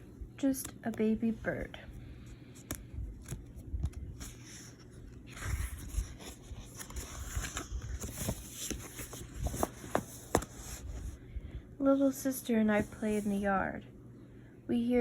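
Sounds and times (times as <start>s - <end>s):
paper rustling: 2.6s - 11.2s.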